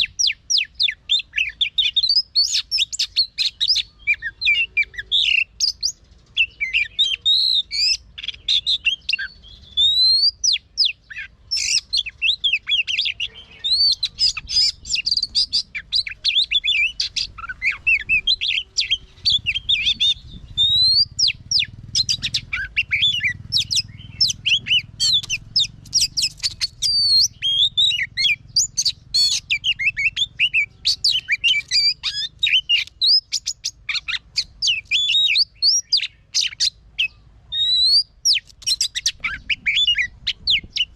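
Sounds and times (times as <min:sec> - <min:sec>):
bird singing whistles and trills: 0:00.0 - 0:40.9.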